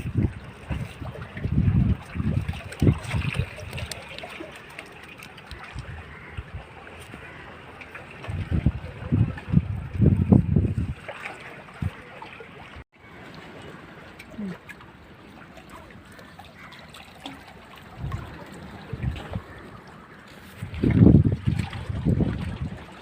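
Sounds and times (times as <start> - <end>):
wind buffeting microphone: 0.0 - 4.0, 8.0 - 12.1, 17.8 - 23.0
sea water sloshing: 0.0 - 23.0.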